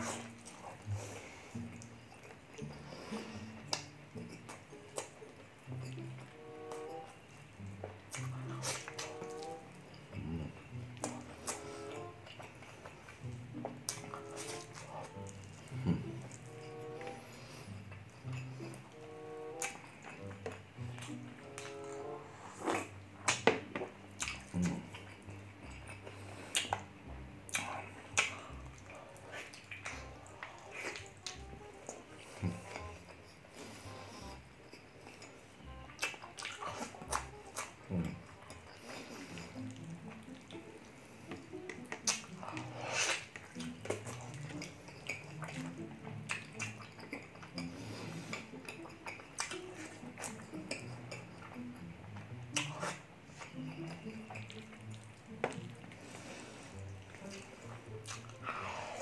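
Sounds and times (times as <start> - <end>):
person chewing: 0.0 - 59.0
wet mouth smacks: 22.7 - 23.5, 26.5 - 26.9, 27.5 - 28.4, 41.7 - 44.0, 46.3 - 46.9, 52.5 - 53.5.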